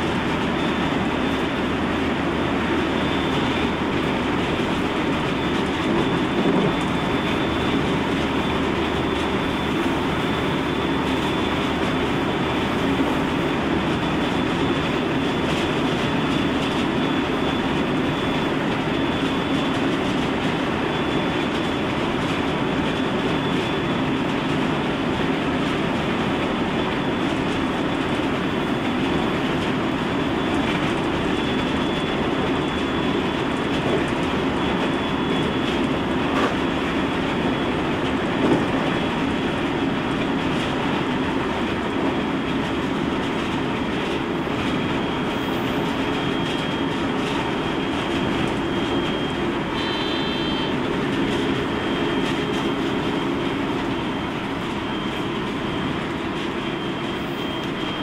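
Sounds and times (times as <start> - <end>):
train wheels rumbling on rail: 0.0 - 58.0
faint steady high tone: 47.8 - 56.0.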